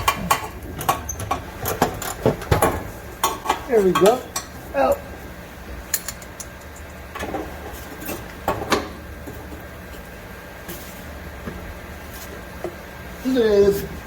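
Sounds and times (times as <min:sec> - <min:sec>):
hand tools knocking against metal: 0:02.5 - 0:04.5.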